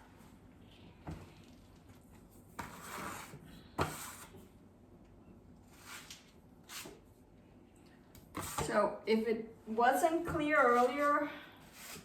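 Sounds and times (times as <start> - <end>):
trowel scraping on wall: 2.6 - 4.4, 8.4 - 8.7, 10.4 - 12.0.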